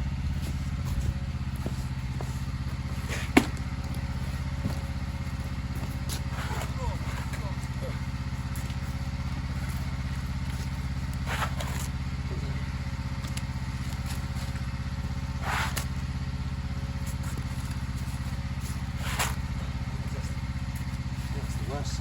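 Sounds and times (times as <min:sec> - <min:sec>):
engine running: 0:00.0 - 0:22.0
shovel scraping on paving: 0:01.8 - 0:03.6, 0:05.9 - 0:07.5, 0:11.2 - 0:12.0, 0:15.3 - 0:16.0, 0:17.0 - 0:19.6.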